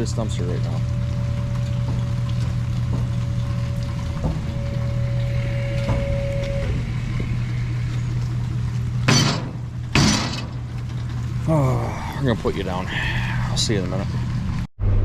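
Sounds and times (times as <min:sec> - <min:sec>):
thin whine: 0:00.0 - 0:15.0
truck engine running: 0:00.0 - 0:15.0.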